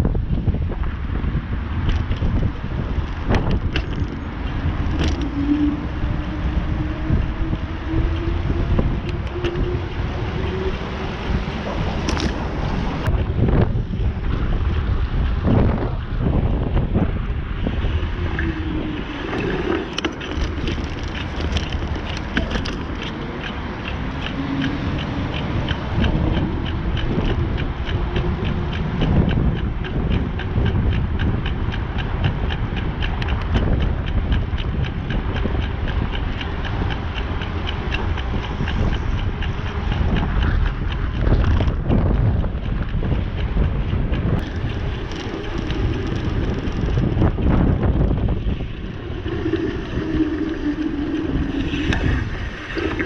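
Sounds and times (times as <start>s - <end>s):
wind buffeting microphone: 0.0s - 53.0s
rapid ticking from bicycle: 1.3s - 11.5s, 13.0s - 53.0s.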